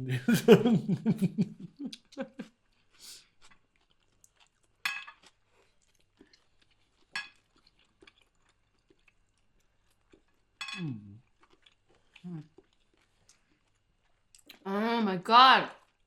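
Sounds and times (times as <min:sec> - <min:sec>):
soft chewing: 0:01.0 - 0:14.6, 0:15.7 - 0:16.0
cutlery clinking on plates: 0:04.9 - 0:05.2, 0:10.6 - 0:10.9
person humming mm: 0:10.8 - 0:11.2.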